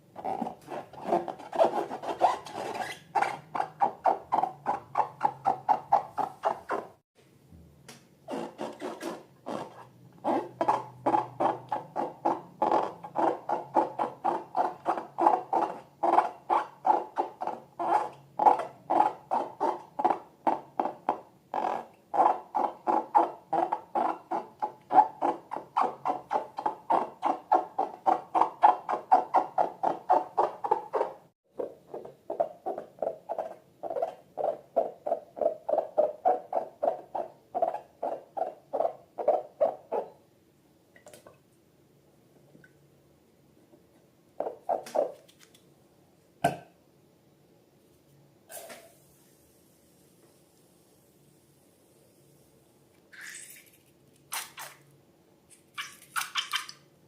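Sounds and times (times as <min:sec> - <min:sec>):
squeaky squelches of slime and balloons: 0:00.1 - 0:07.0, 0:08.2 - 0:40.2, 0:44.4 - 0:45.5, 0:53.1 - 0:54.9, 0:55.5 - 0:56.9.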